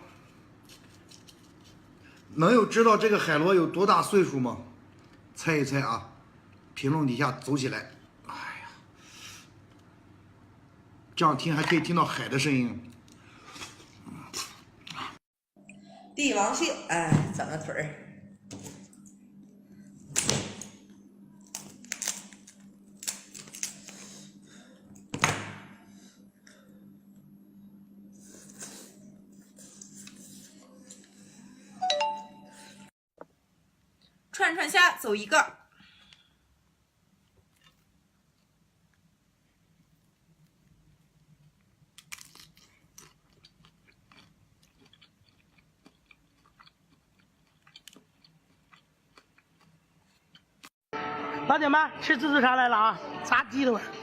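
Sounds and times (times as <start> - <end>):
person chewing crunchy food: 37.2 - 38.5, 41.3 - 50.8.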